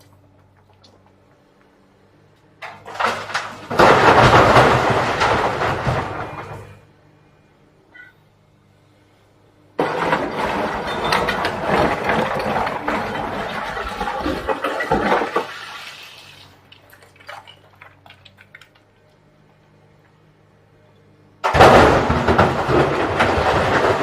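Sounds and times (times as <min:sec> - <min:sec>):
falling stones: 0:02.6 - 0:06.8, 0:09.8 - 0:18.8, 0:21.4 - 0:24.0.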